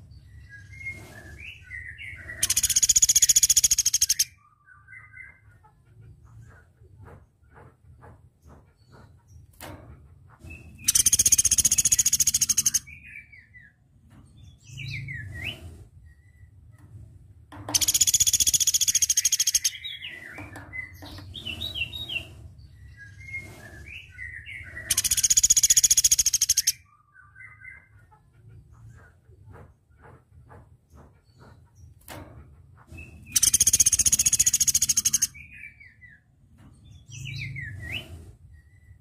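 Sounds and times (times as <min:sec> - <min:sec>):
bird chips and twittering: 0:00.0 - 0:05.5, 0:10.5 - 0:13.8, 0:17.7 - 0:28.0, 0:33.0 - 0:36.2
bird rattling trills: 0:02.3 - 0:04.3, 0:10.8 - 0:12.8, 0:17.7 - 0:22.3, 0:23.2 - 0:26.8, 0:33.1 - 0:35.3.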